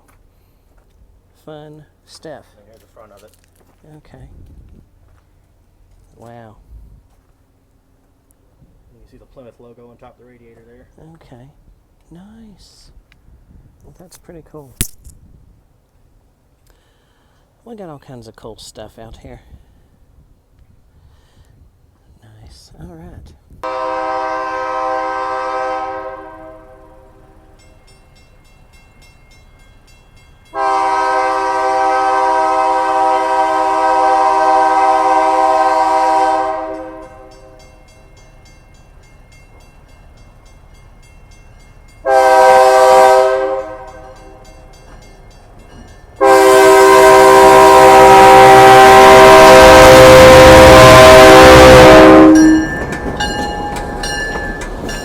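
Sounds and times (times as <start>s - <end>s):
train running and wheel noise: 0.0s - 16.6s, 17.3s - 55.0s
locomotive air horn: 23.6s - 27.6s, 30.5s - 37.6s, 42.0s - 44.4s, 46.2s - 53.4s.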